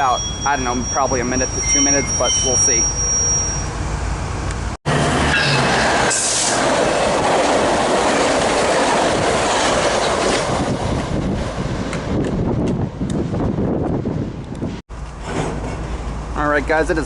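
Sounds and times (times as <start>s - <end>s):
train wheels rushing on rail: 4.5s - 16.4s.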